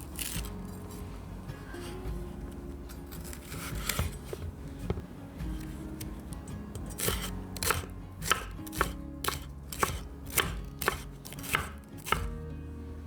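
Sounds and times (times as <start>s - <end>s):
soft background music: 0.0s - 13.0s
knife chopping on cutting board: 0.2s - 0.6s, 3.4s - 4.5s, 6.7s - 12.4s.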